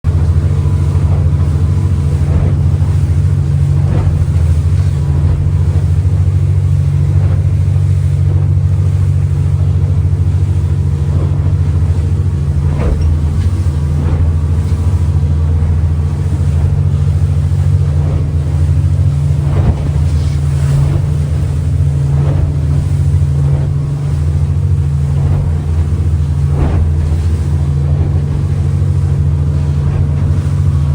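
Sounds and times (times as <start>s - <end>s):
boat engine droning: 0.0s - 30.9s
wind buffeting microphone: 0.0s - 30.9s
hull thumping through chop: 11.1s - 30.9s.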